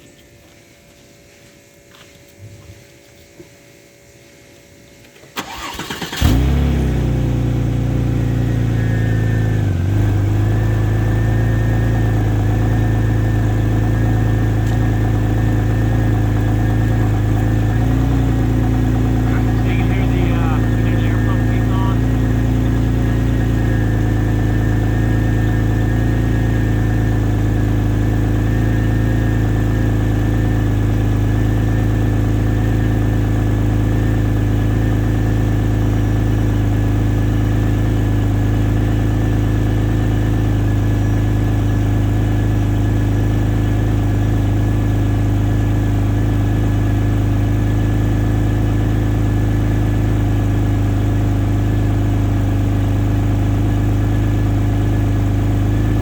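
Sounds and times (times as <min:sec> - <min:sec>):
car engine idling: 0:05.4 - 0:56.0.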